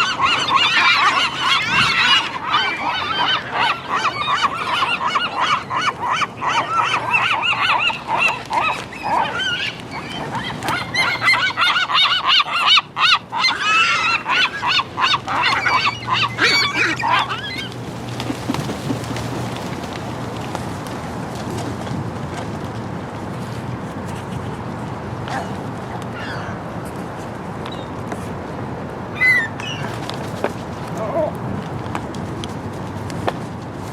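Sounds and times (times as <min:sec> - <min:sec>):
gulls calling: 0:00.0 - 0:21.8, 0:29.1 - 0:31.4.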